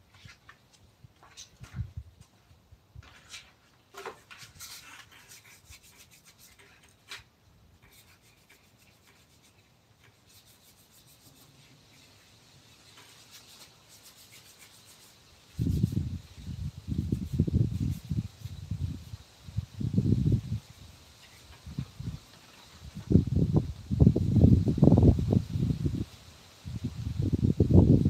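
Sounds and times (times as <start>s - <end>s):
sanding wood by hand: 4.3s - 7.2s, 7.8s - 12.3s, 12.9s - 19.2s.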